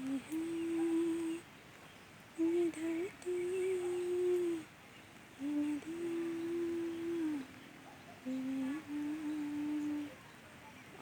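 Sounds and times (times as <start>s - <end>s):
person humming: 0.0s - 1.4s, 2.4s - 4.6s, 5.4s - 7.5s, 8.3s - 10.2s.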